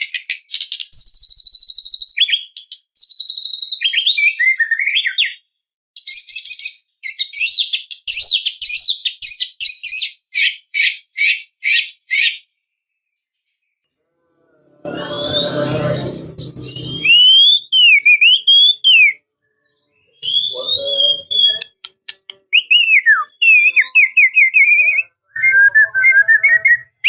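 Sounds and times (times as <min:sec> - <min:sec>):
songbird singing whistled phrases: 0:00.4 - 0:12.4, 0:16.6 - 0:19.2, 0:20.0 - 0:27.0.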